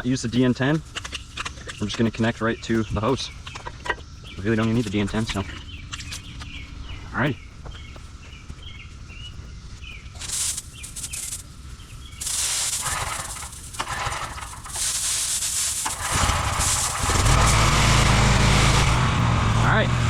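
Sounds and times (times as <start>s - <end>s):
hiss of spray: 10.2s - 11.6s, 12.2s - 19.0s
pressure washer engine drone: 12.1s - 20.0s.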